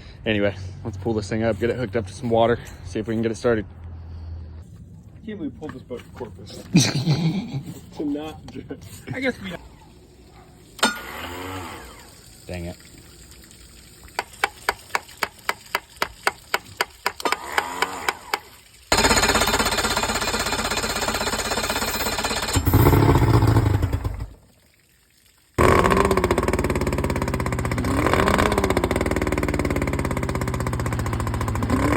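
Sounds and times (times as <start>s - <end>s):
outboard motor running unevenly: 10.8s - 12.4s, 25.6s - 31.9s
outboard motor starter cranking: 10.8s - 12.6s, 14.2s - 24.4s, 25.6s - 31.9s.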